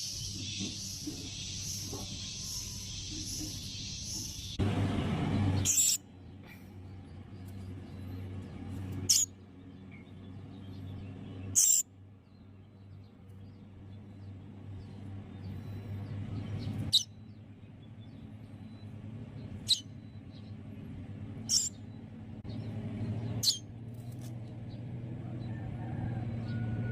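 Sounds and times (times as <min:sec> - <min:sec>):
low steady hum: 0:00.0 - 0:25.2
baby bird calling: 0:05.6 - 0:06.0, 0:09.0 - 0:09.3, 0:11.5 - 0:11.9, 0:16.9 - 0:17.1, 0:19.5 - 0:19.9, 0:21.4 - 0:21.8, 0:23.4 - 0:23.6.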